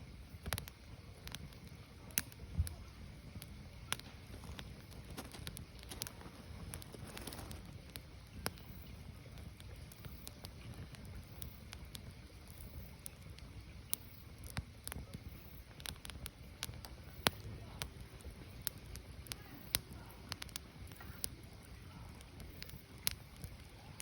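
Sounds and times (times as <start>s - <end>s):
firewood crackling and popping: 0.0s - 24.0s
low rumble of fire: 0.0s - 24.0s.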